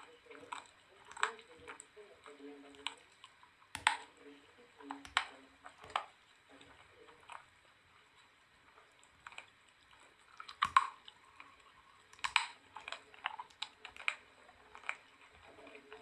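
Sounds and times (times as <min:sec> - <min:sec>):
crunching and chewing soap: 0:09.0 - 0:16.0.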